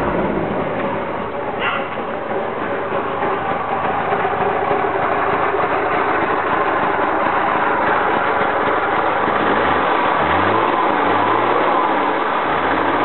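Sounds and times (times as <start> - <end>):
two-stroke car engine idling: 0.0 - 13.0.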